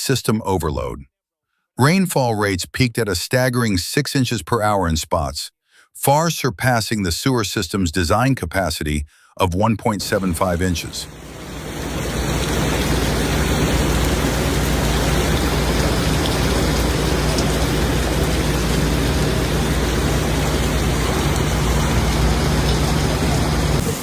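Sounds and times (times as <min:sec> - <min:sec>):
heavy rain pouring: 0:10.0 - 0:24.0.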